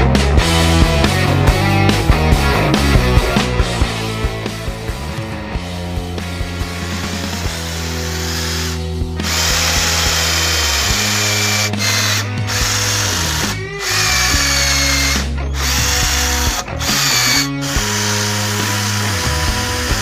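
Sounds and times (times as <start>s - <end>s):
background music: 0.0s - 20.0s
power tool motor whining: 6.4s - 20.0s.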